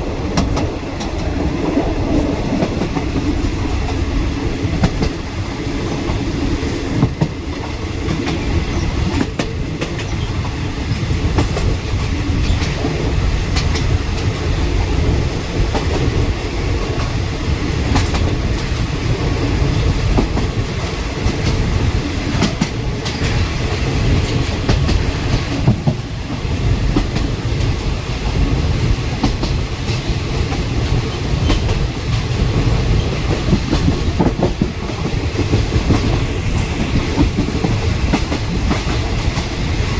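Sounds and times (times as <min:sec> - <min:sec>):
train wheels rumbling on rails: 0:00.0 - 0:39.9
clacks over rail joints: 0:04.7 - 0:05.2, 0:07.0 - 0:14.9, 0:17.8 - 0:18.9, 0:19.7 - 0:39.6.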